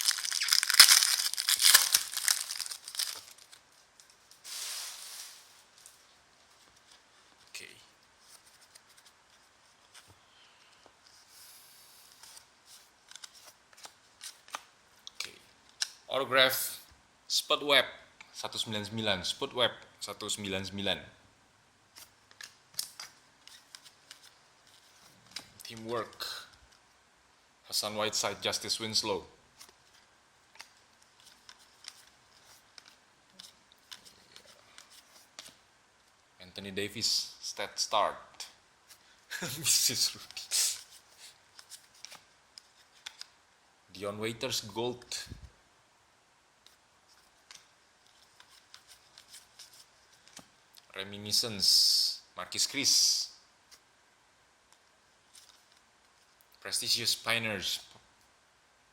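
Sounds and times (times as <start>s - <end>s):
trading cards clicking and rustling: 0.0s - 3.6s.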